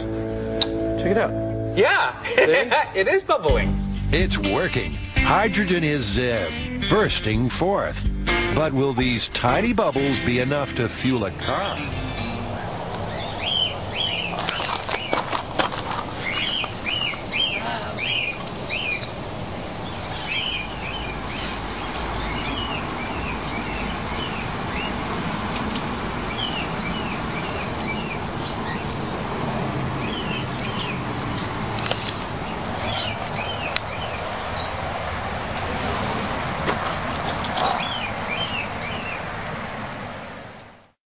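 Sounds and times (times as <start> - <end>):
birds chirping: 4.2 - 39.4
steady background noise: 8.6 - 41.0.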